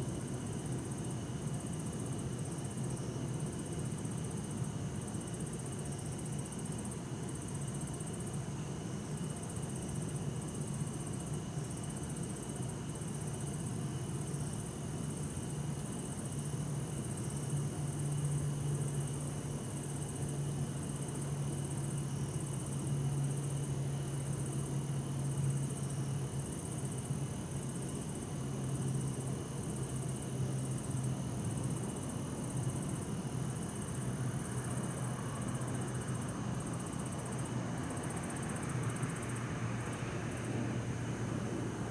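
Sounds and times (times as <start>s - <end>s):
crickets chirping in high trills: 0.0s - 41.9s
distant city traffic hum: 19.8s - 41.9s.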